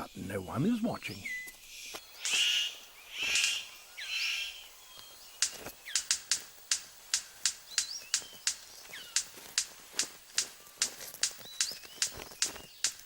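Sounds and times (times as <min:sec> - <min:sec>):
bird harsh rasping calls: 0:01.0 - 0:04.8
bird sharp clicks: 0:01.9 - 0:04.6, 0:05.4 - 0:13.0.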